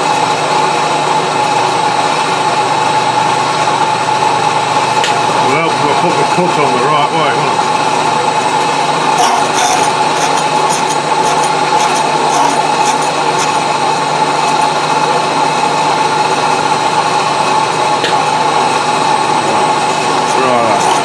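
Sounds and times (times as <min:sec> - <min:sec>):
milling machine whining: 0:00.0 - 0:21.0
scratchy crackles of cutting: 0:09.2 - 0:13.7, 0:19.4 - 0:21.0.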